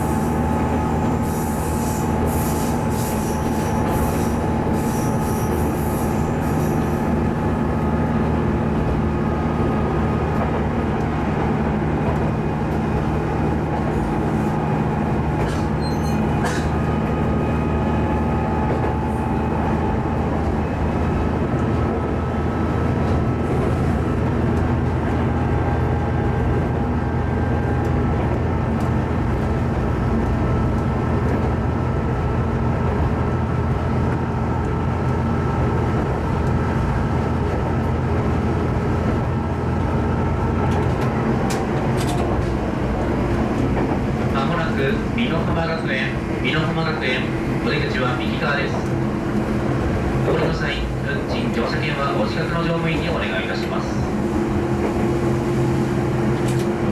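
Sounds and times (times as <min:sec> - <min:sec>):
railcar engine drone: 0:00.0 - 0:56.9
wheel and rail noise: 0:00.0 - 0:56.9
high wheel squeals: 0:01.2 - 0:07.1, 0:15.4 - 0:16.8.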